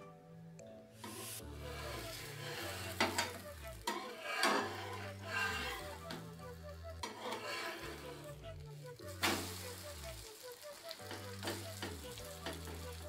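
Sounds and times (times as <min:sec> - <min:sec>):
background music with bass: 0:00.0 - 0:13.0
spatula scraping a pan: 0:01.0 - 0:06.2, 0:07.0 - 0:08.4
chapati sizzling on a pan: 0:01.0 - 0:13.0.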